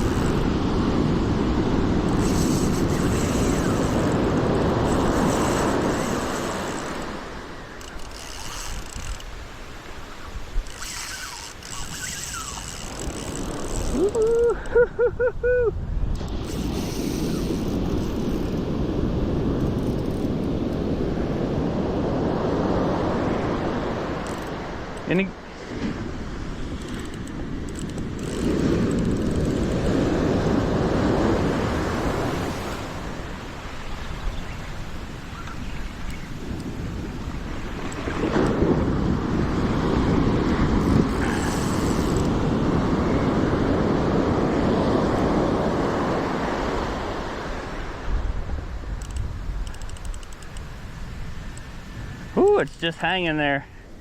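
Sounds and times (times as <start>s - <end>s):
wind buffeting microphone: 0.0s - 25.0s, 25.6s - 53.0s
surf washing on beach: 0.0s - 54.0s
man whooping cheer: 13.9s - 15.8s.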